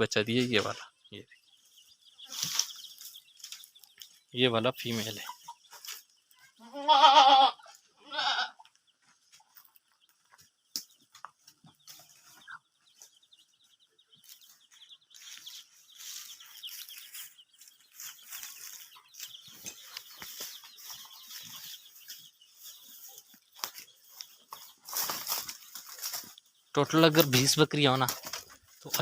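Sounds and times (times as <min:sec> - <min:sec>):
faint scratchy rustling: 0:01.6 - 0:04.2, 0:04.8 - 0:06.6, 0:09.0 - 0:29.0
goat bleating: 0:06.6 - 0:08.7.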